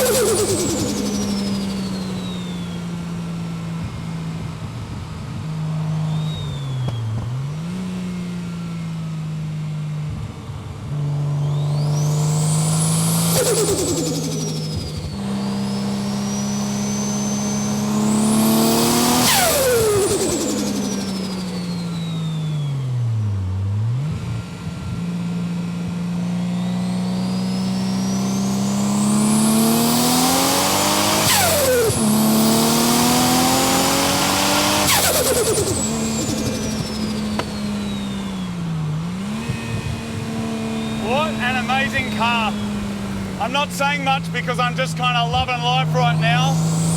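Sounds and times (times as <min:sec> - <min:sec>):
car engine running hard: 0:00.0 - 0:46.9
high turbo whine: 0:00.0 - 0:46.9.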